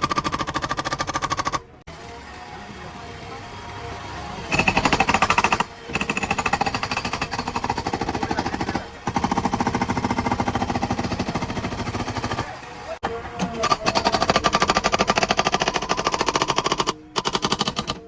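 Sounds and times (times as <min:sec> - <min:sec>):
hydraulic breaker hammering: 0:04.5 - 0:18.0.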